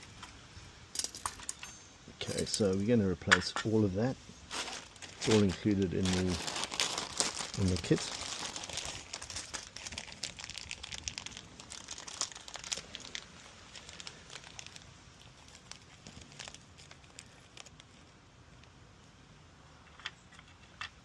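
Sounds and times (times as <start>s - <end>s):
plastic packaging crinkling: 4.5s - 18.2s.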